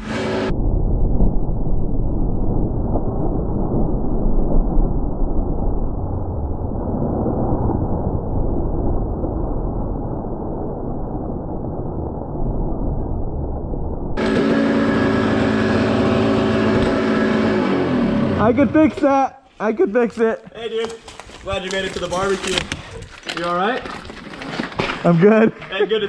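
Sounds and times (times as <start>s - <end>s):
dirt bike engine: 0.0s - 0.5s, 14.2s - 19.2s.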